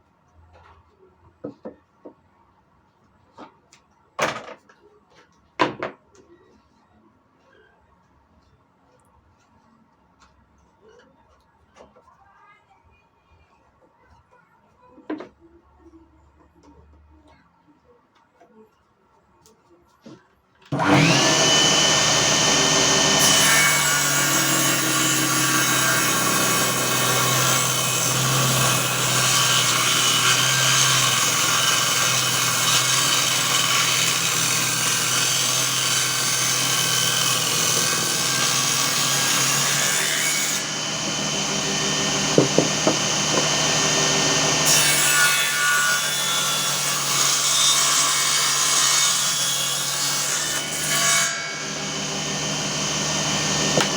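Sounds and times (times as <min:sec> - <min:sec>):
circular saw whining: 0:20.7 - 0:47.4, 0:48.2 - 0:53.9
saw blade cutting wood: 0:20.7 - 0:53.9
sharp knocks: 0:41.0 - 0:43.8.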